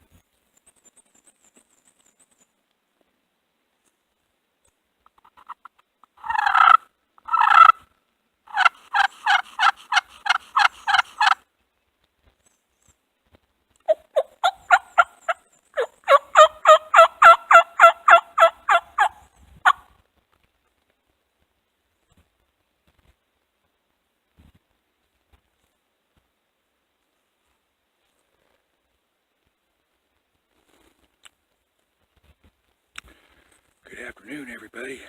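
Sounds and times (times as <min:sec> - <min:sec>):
turkey call hen yelps: 0:05.2 - 0:07.8, 0:08.5 - 0:11.4, 0:13.9 - 0:19.9.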